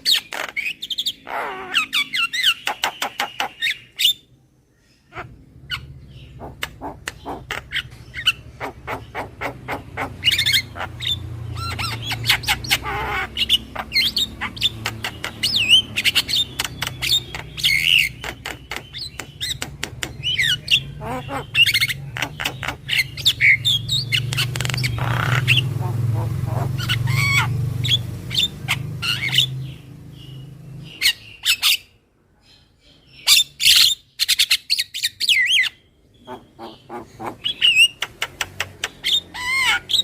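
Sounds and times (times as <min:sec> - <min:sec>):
bird calling with clicks and whistles: 0:00.0 - 0:04.2, 0:06.5 - 0:25.6.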